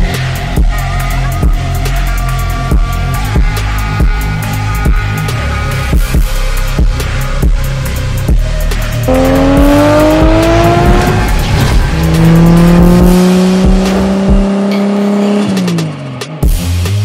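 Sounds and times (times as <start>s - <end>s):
car engine accelerating hard: 9.0s - 16.3s.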